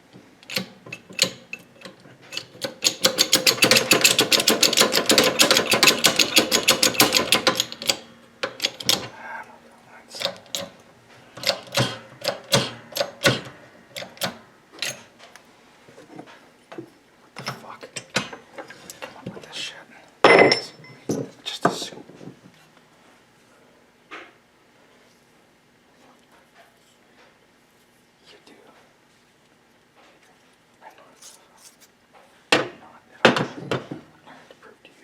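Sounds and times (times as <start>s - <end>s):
ratchet wrench clicking: 2.3s - 8.0s.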